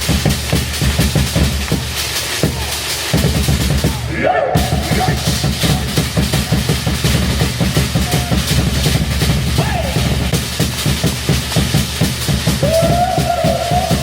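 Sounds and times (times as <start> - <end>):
live music with fast drumming: 0.0 - 14.0
held note or call: 4.0 - 6.8.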